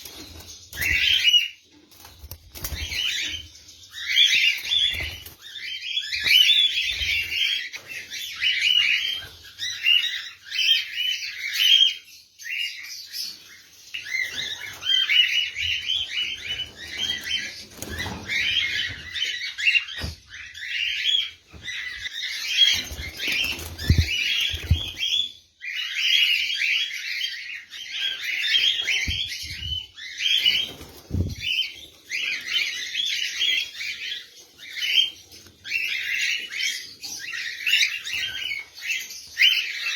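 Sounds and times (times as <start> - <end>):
caged birds chirping: 0.0 - 39.9
wing flutters and thumps: 22.8 - 25.1, 30.7 - 31.5.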